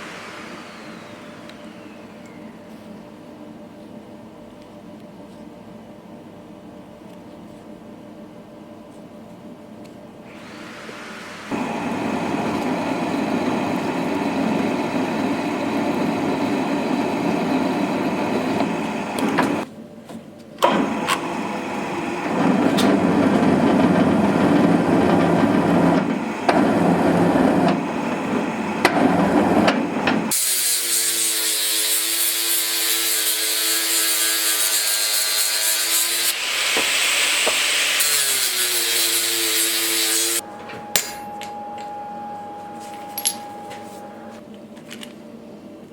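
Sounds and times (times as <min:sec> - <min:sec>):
electric power tool running: 0:00.0 - 0:02.4, 0:10.3 - 0:19.6, 0:20.6 - 0:31.2.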